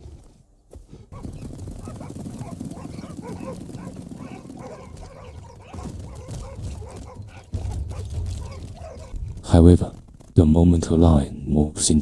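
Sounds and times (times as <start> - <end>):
wild dogs yelping and chirping: 1.1 - 9.5.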